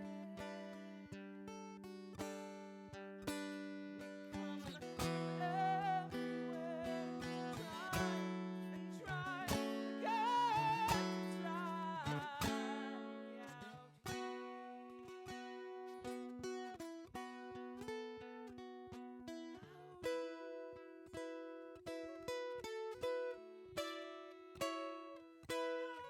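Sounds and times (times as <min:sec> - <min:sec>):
person singing: 0:00.0 - 0:01.1, 0:04.4 - 0:15.5, 0:25.5 - 0:26.0
acoustic guitar: 0:00.0 - 0:26.0.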